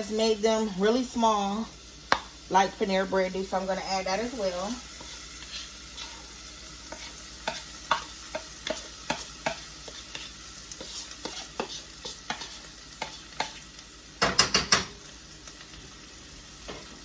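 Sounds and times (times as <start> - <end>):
onions sizzling in a pan: 0.0 - 17.0
utensil clicking and scraping pan: 4.9 - 13.6.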